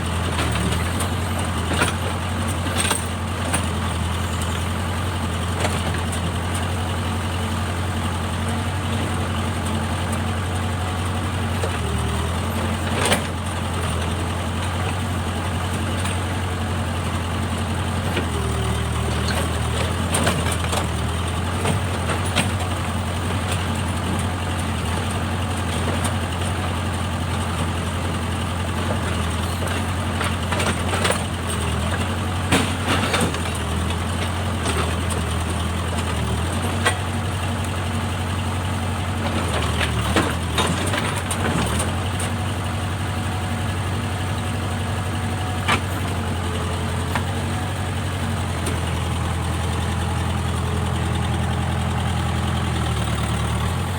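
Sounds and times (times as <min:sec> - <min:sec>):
diesel engine droning: 0:00.0 - 0:53.9.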